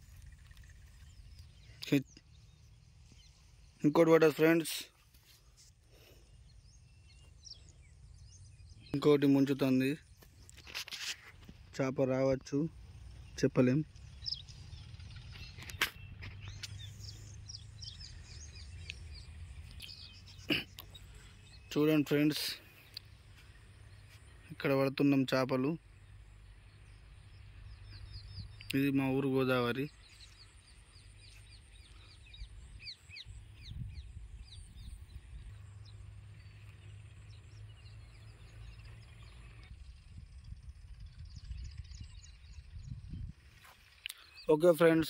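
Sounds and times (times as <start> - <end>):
small birds chirping: 0.0 - 45.0
steady low rumble: 12.4 - 21.7, 29.9 - 43.6.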